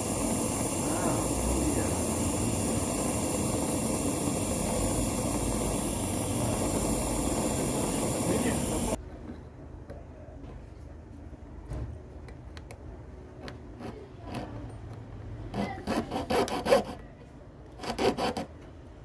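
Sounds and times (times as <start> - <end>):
metal file rasping on ring: 15.6 - 17.0.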